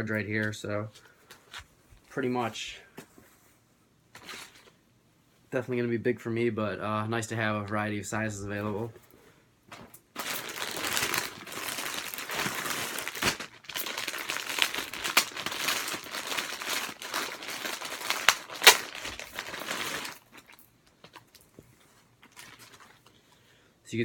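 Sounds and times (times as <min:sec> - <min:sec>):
packaging crinkling and rustling: 0:09.7 - 0:23.4.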